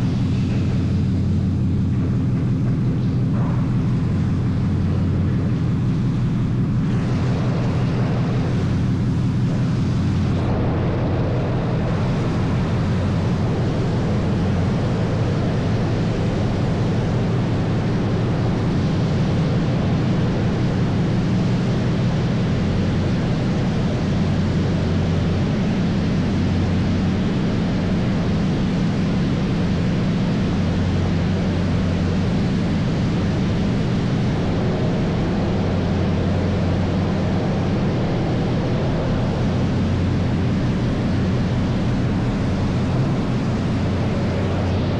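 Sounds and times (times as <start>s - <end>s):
car wash rumble: 0.0s - 44.9s
rushing noise: 33.0s - 44.9s.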